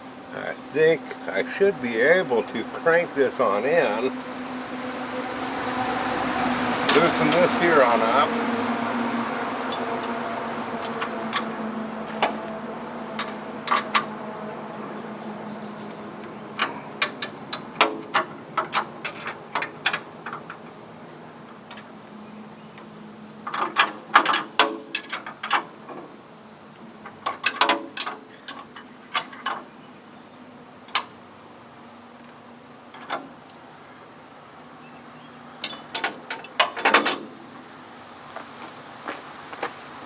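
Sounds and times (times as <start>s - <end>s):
low hum: 0.0s - 21.7s
wrench metal clicks and clanks: 6.9s - 7.5s, 9.7s - 11.5s, 13.2s - 14.1s, 16.6s - 20.6s, 23.4s - 26.0s, 35.6s - 37.4s.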